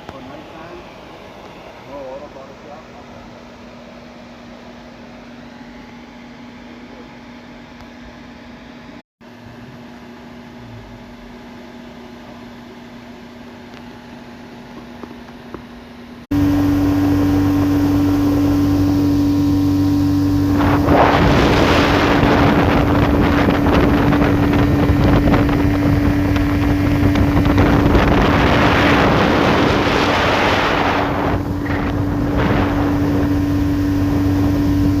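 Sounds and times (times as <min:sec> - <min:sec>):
outboard motor running: 0:14.6 - 0:35.0
wind rushing over microphone: 0:16.3 - 0:35.0.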